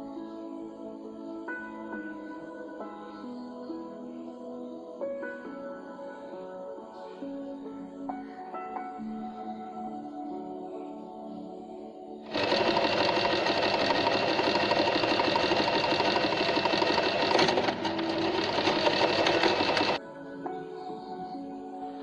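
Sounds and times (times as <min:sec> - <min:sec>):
soft background music: 0:00.0 - 0:22.0
electric sewing machine stitching: 0:12.3 - 0:20.0.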